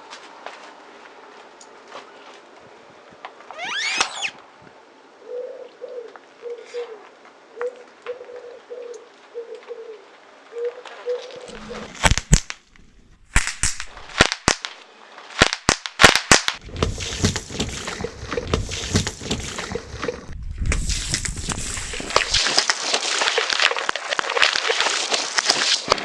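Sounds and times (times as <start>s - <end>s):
tyre crushing brittle objects: 11.4s - 14.5s, 16.0s - 26.0s
low rumble: 11.5s - 14.2s, 16.6s - 22.4s.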